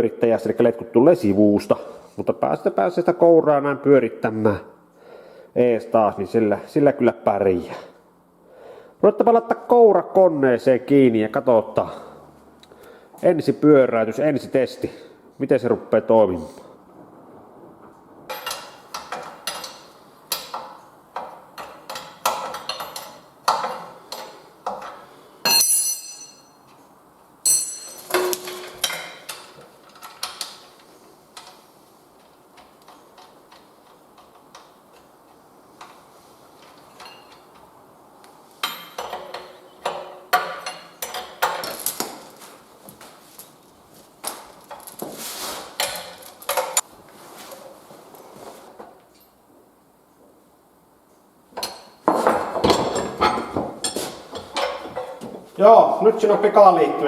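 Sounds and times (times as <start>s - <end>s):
metallic clinks of tools: 25.4s - 26.6s, 27.5s - 29.1s
ringing metal clanks: 25.4s - 26.7s, 27.4s - 29.1s.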